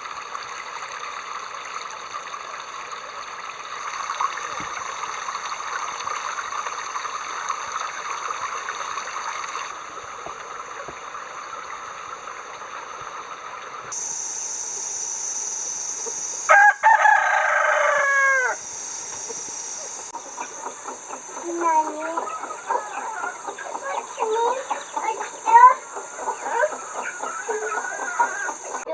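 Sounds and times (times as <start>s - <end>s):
steady rushing hiss: 0.0s - 28.9s
rooster crowing: 16.5s - 18.6s, 22.2s - 23.5s, 25.5s - 28.8s.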